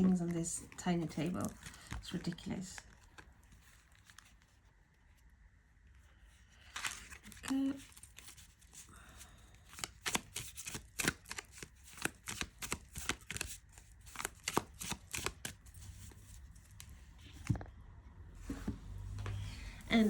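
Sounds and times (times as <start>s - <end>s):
cards shuffling: 0.0s - 4.5s, 6.6s - 8.8s, 9.6s - 17.6s.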